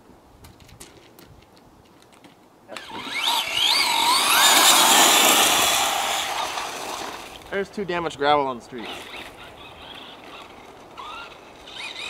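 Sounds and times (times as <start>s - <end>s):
electric motor whining: 2.7s - 7.5s, 8.8s - 12.0s
tyres hissing on gravelly asphalt: 3.2s - 12.0s.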